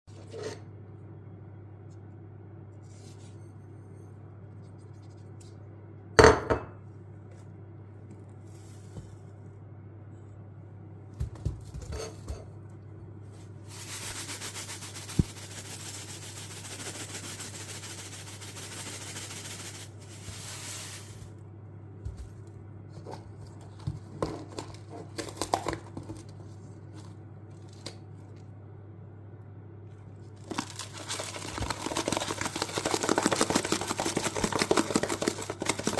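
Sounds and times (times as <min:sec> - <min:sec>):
low steady hum: 0:00.1 - 0:35.9
dishes knocking: 0:06.2 - 0:06.8.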